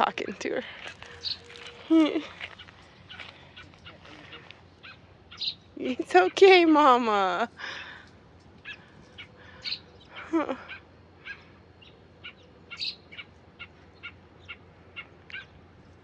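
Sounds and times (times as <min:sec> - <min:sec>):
bird sharp chirps: 0:01.1 - 0:01.8, 0:04.8 - 0:05.8, 0:08.6 - 0:15.6.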